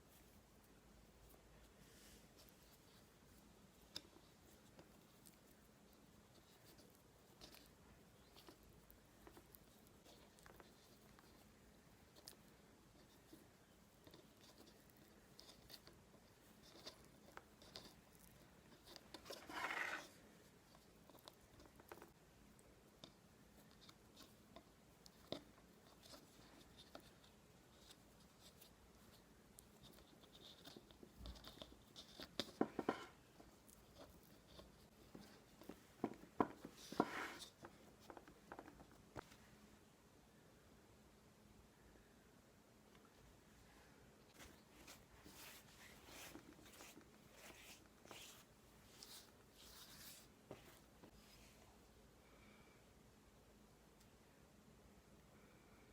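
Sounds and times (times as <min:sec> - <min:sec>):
faint clicks and taps: 0:20.7 - 0:39.4.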